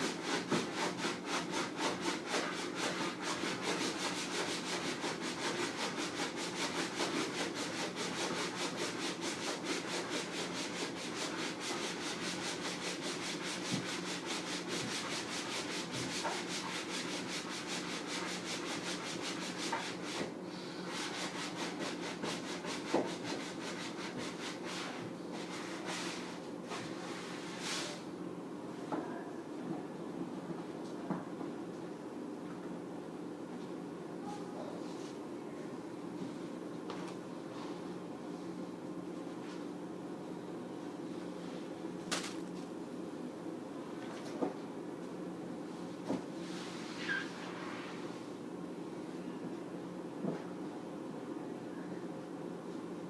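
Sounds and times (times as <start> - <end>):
sponge scrubbing: 0.0 - 20.2, 20.9 - 28.0.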